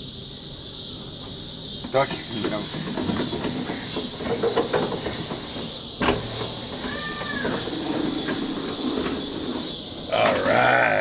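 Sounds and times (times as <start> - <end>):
window crank turning: 2.0 - 10.5.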